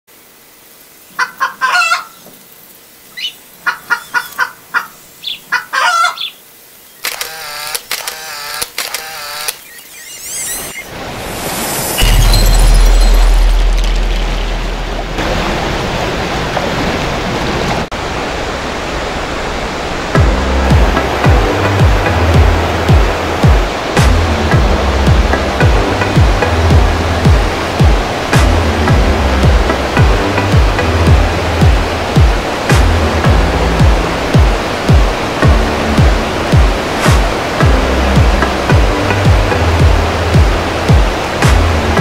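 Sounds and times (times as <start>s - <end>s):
warbling bird call: 3.1s - 7.7s, 9.2s - 10.9s
short clucking bird calls: 3.2s - 6.4s
rising chirps: 9.6s - 14.8s
loud rushing noise with rumble: 10.9s - 42.0s.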